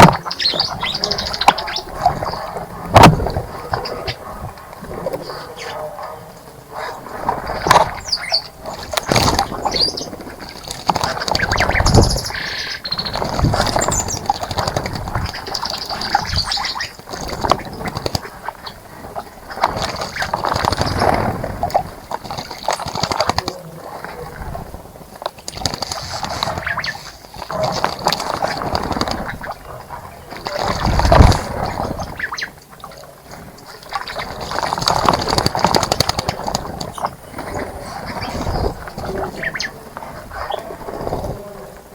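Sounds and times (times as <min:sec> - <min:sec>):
birds chirping: 0:00.0 - 0:24.4, 0:25.0 - 0:41.9
birds splashing in water: 0:00.0 - 0:41.9.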